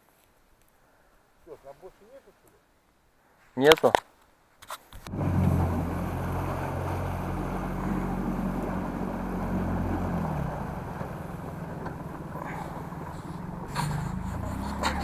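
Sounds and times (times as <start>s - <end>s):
engine humming: 5.0s - 15.0s.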